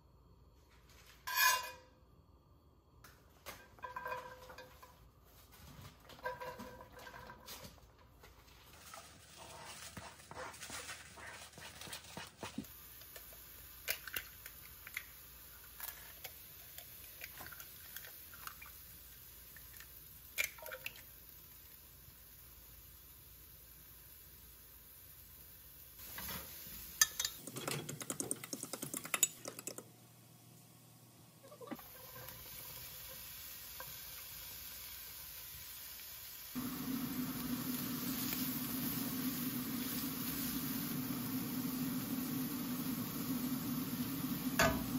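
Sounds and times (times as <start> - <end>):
food sizzling in a frying pan: 12.6 - 27.4, 31.5 - 44.9
utensils and dishes clicking: 27.0 - 29.9.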